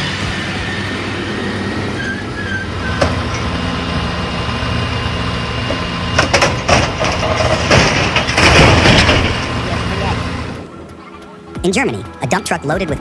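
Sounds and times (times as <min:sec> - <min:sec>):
heavy vehicle engine running: 0:00.0 - 0:11.6
knocks and clatters: 0:05.7 - 0:10.3.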